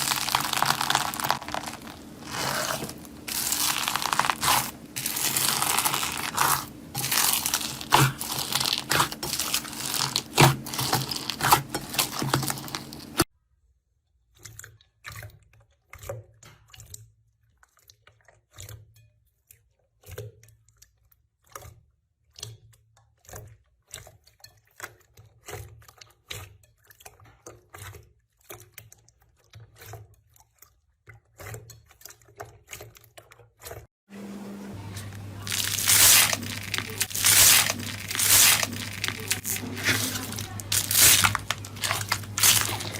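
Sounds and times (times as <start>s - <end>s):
slime crunching and crackling: 0.0s - 13.3s, 34.9s - 42.9s.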